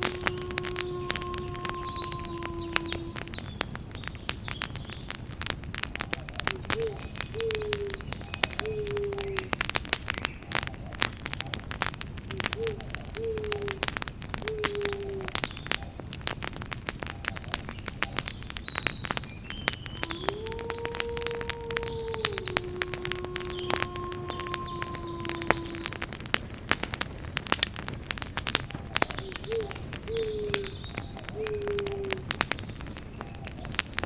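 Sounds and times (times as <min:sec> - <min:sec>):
owl hooting: 0:00.0 - 0:03.5, 0:06.0 - 0:09.5, 0:12.3 - 0:16.0, 0:19.8 - 0:26.1, 0:28.8 - 0:32.3
campfire crackling and popping: 0:00.0 - 0:34.0.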